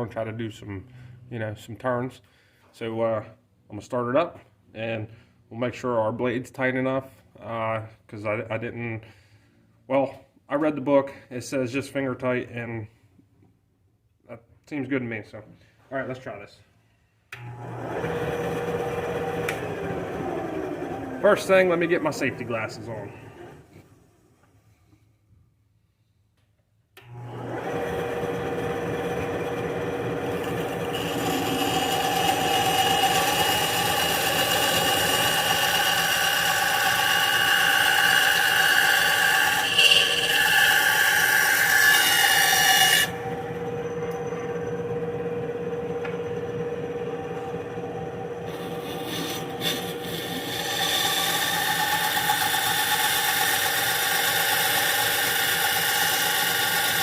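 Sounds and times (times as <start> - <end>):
bandsaw cutting wood: 17.4 - 23.6, 27.0 - 44.9, 46.0 - 57.0
bandsaw running: 17.4 - 23.6, 27.0 - 57.0.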